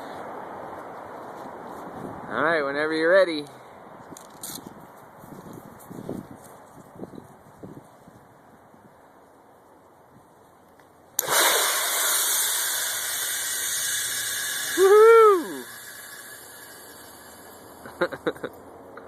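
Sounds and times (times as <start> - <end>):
airbag inflating with hiss: 11.2 - 18.1
woman cheering: 14.8 - 15.7.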